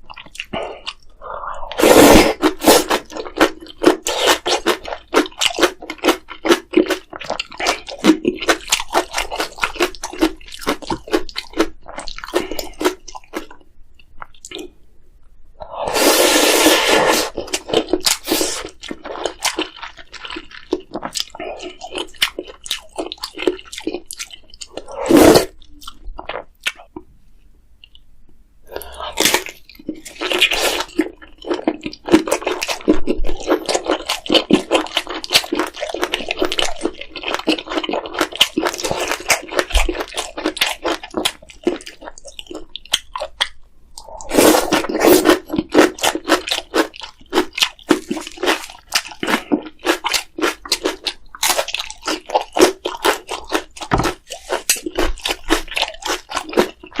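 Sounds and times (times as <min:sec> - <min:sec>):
wet chewing and smacking: 0:00.0 - 0:01.2, 0:02.3 - 0:14.7, 0:17.3 - 0:27.1, 0:28.7 - 0:57.0
slurping noodles: 0:01.3 - 0:03.2, 0:15.6 - 0:18.8, 0:24.7 - 0:25.6, 0:30.2 - 0:31.0, 0:44.0 - 0:46.1, 0:54.2 - 0:55.7.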